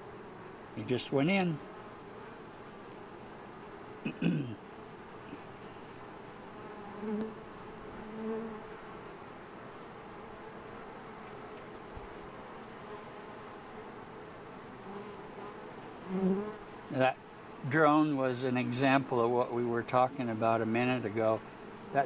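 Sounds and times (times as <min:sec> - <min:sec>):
bees buzzing: 0:00.0 - 0:22.0
single bee passing close: 0:01.5 - 0:16.9.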